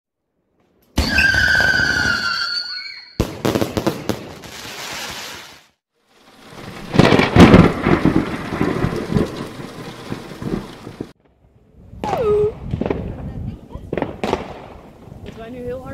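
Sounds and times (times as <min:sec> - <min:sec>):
firework whistling burst: 0:01.0 - 0:08.7
loud firework shots: 0:03.2 - 0:05.4, 0:06.9 - 0:11.2, 0:12.0 - 0:15.8
fireworks crackling: 0:03.2 - 0:11.4, 0:12.0 - 0:15.9.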